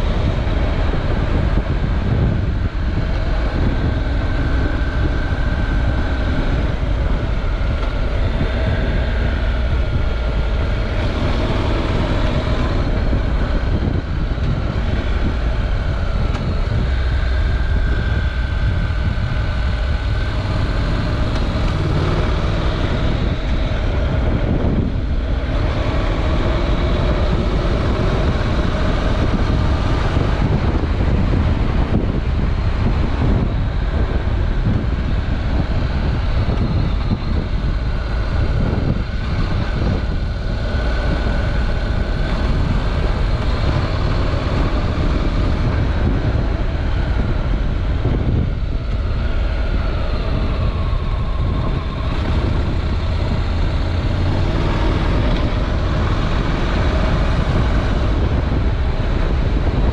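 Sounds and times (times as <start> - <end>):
motorcycle engine running: 0.0 - 59.9
wind rumble on microphone: 0.0 - 59.9.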